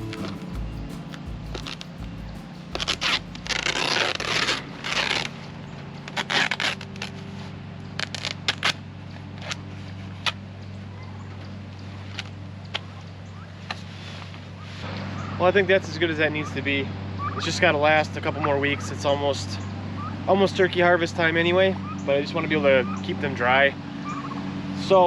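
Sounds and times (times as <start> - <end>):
plastic tarp rustling and scraping: 1.6 - 8.8.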